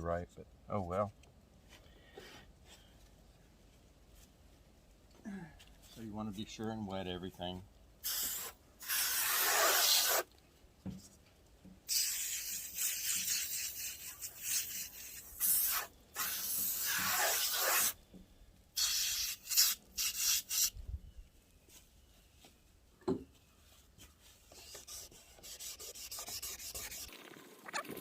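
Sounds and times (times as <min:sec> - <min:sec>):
wet sandpaper rubbing headlight: 0:08.1 - 0:10.2, 0:11.9 - 0:18.0, 0:24.5 - 0:27.1.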